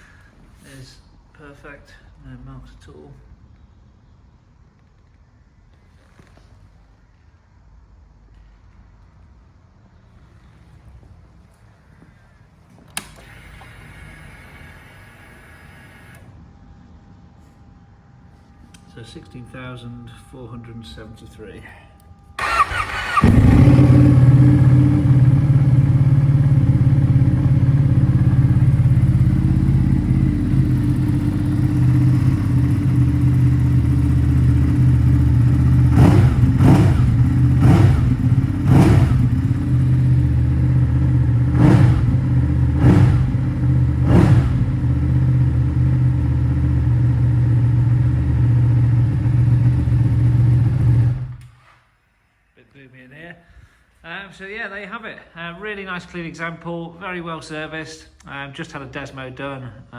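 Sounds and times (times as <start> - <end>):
motorcycle engine idling: 22.4 - 51.3
engine revving blips: 22.4 - 51.5.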